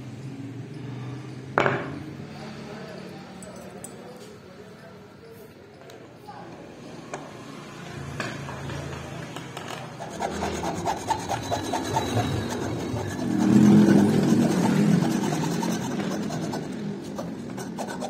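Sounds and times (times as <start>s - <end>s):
hand file rasping: 9.8s - 18.0s.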